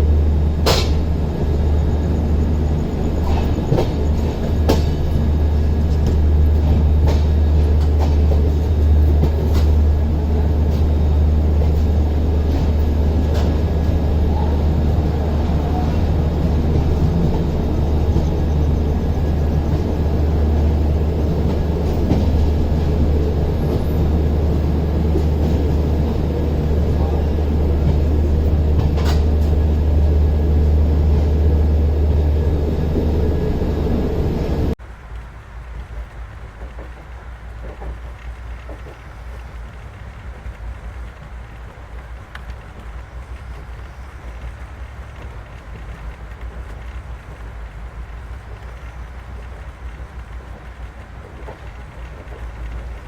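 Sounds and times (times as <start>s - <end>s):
passenger train rumbling: 0.0s - 53.0s
faint clicks: 35.1s - 53.0s.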